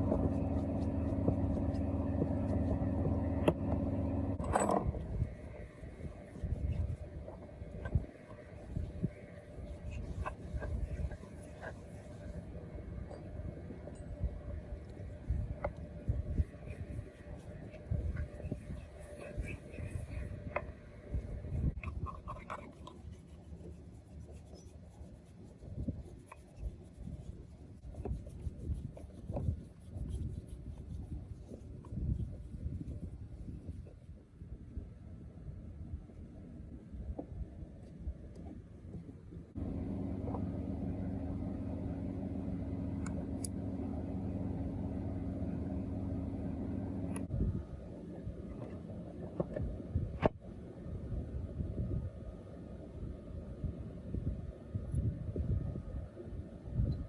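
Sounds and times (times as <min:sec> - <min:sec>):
hand rubbing and scraping: 0:00.0 - 0:34.4.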